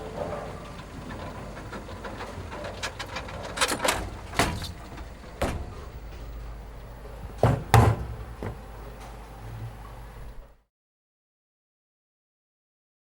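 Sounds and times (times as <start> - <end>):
low hum: 0.0 - 10.6
sharp knocks and clunks: 2.9 - 6.4, 7.2 - 8.7.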